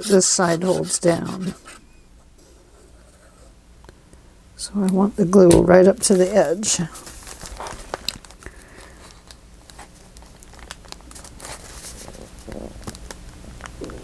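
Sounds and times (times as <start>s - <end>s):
paper rustling and crinkling: 5.1s - 13.7s.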